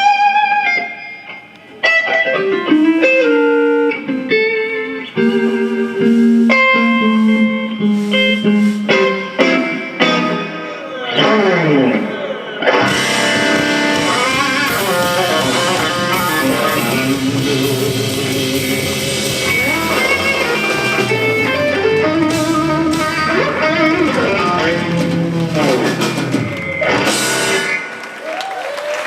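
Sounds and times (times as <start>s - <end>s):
blues band playing: 0.0s - 29.0s
full-band hit: 12.8s - 28.1s.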